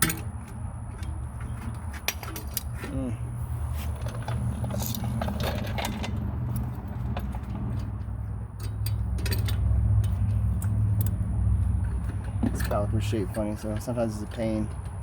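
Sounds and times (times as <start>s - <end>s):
metal clamp clinks: 11.8s - 13.9s.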